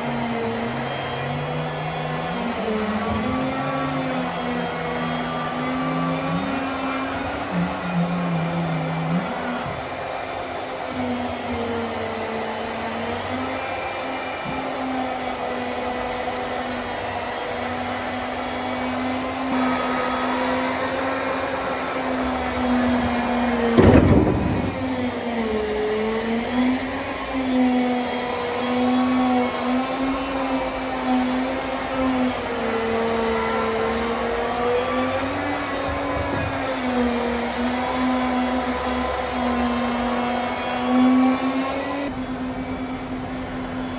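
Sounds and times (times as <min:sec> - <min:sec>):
machine whine: 0:00.0 - 0:43.9
loud thump: 0:23.8 - 0:25.8.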